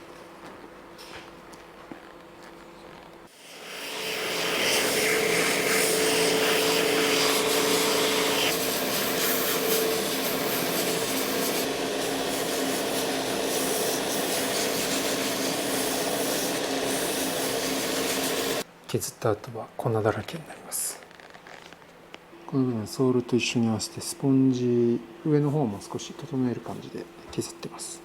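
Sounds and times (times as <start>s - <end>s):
electric sander grinding rubber: 3.4s - 18.6s.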